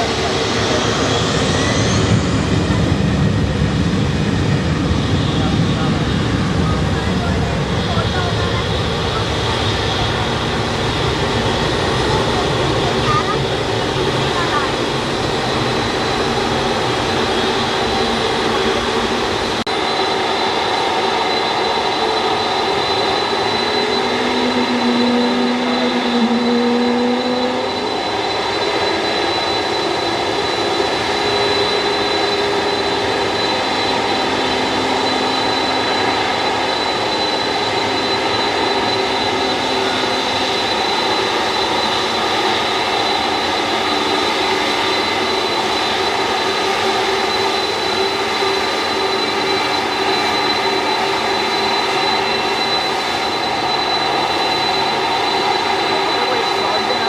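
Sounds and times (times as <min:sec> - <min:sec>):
jet engines whining: 0:00.0 - 0:57.0.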